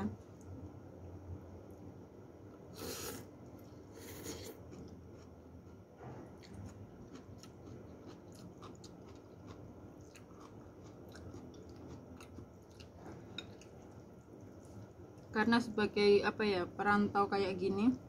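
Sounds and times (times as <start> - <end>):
person chewing noodles: 2.7 - 15.3.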